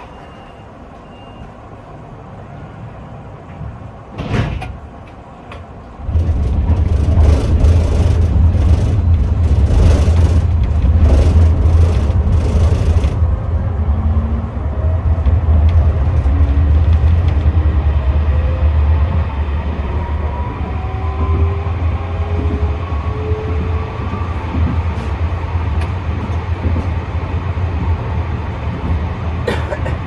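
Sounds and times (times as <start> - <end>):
tram running gear rumble: 0.0 - 30.0
tram clunk: 3.2 - 30.0
traction motor whine: 6.0 - 14.6.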